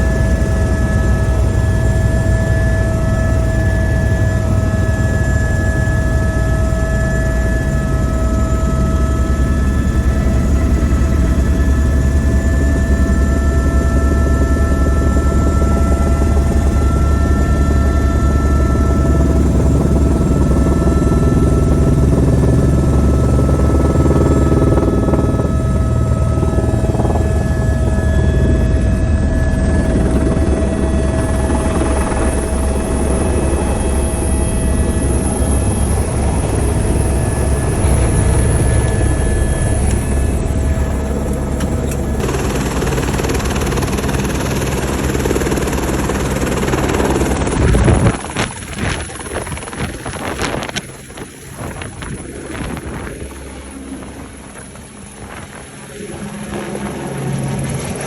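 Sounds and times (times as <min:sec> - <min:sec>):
helicopter engine whine: 0:00.0 - 0:58.0
helicopter rotor rumble: 0:00.0 - 0:58.0
wind-like noise: 0:23.8 - 0:42.3, 0:45.5 - 0:58.0.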